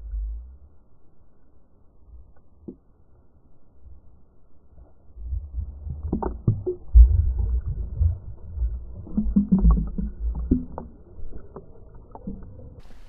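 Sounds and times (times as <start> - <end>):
muffled water sloshing: 4.8 - 13.0.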